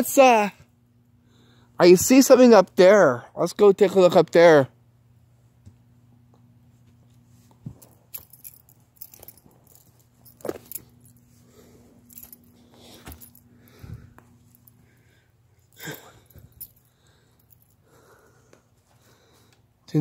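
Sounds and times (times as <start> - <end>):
light jingling: 7.8 - 18.1.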